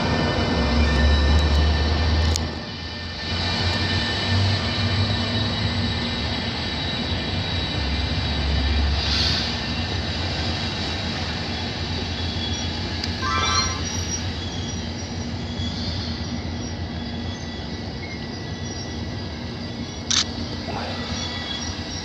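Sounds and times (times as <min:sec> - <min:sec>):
train rumble: 0:00.0 - 0:22.0
wheel squeal: 0:11.4 - 0:20.0
sharp screech: 0:13.2 - 0:14.8.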